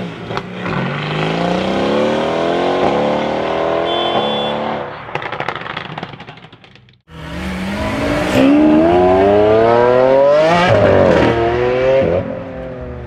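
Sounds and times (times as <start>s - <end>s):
car engine revving: 7.1s - 13.0s.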